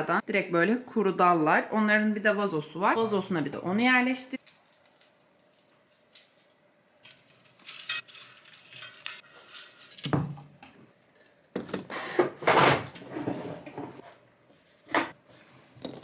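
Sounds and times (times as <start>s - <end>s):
items clattering: 4.4s - 14.2s.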